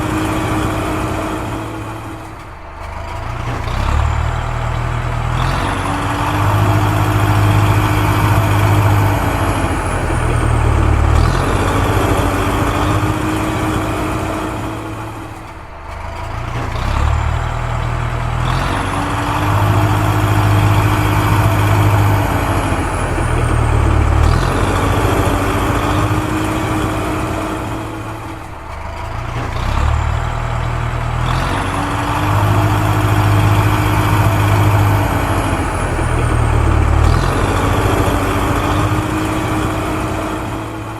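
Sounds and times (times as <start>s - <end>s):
heavy vehicle engine rumbling: 0.0s - 40.9s.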